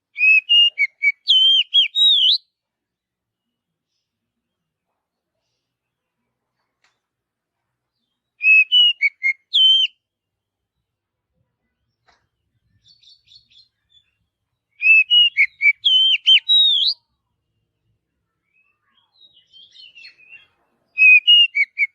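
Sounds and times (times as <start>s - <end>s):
bird singing whistled notes: 0.1s - 2.5s, 8.3s - 10.1s, 12.8s - 17.1s, 18.4s - 21.9s.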